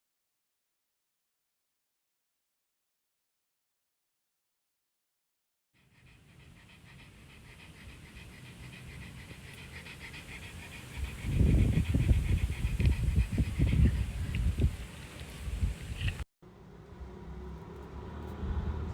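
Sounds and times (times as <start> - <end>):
dog panting rapidly: 5.8 - 16.2
low wind buffeting on microphone: 9.7 - 16.2.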